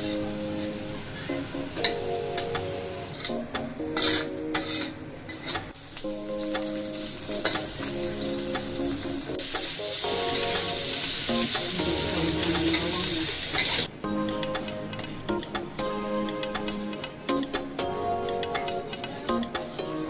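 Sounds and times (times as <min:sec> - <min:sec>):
metal spatula scraping a pan: 0:03.1 - 0:05.7
food sizzling in oil in a wok: 0:04.0 - 0:13.9.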